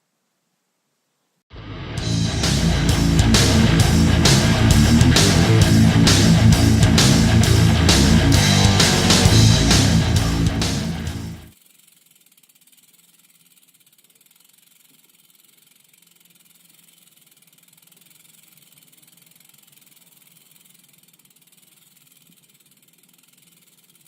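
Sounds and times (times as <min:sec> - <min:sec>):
faint steady hiss: 0:00.0 - 0:01.4
loud rock music: 0:01.5 - 0:11.5
low hum: 0:01.5 - 0:11.5.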